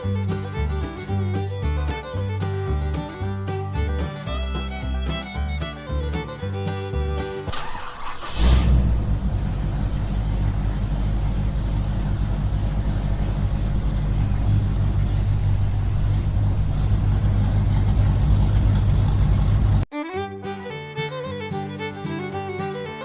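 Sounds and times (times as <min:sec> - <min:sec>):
small engine droning: 0:00.0 - 0:23.0.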